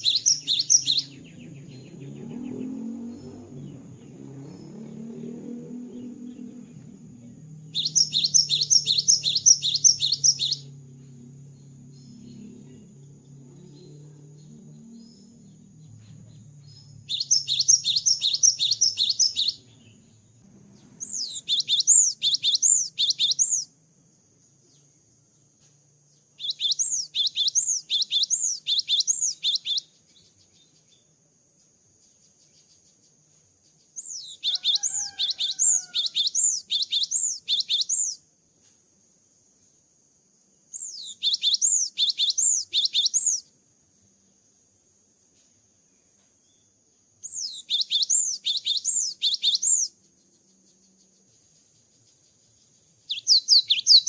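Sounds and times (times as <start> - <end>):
bird singing high sweeping notes: 0.0 - 23.7, 26.4 - 30.0, 34.0 - 38.2, 40.8 - 43.4, 47.2 - 50.0, 53.1 - 54.0.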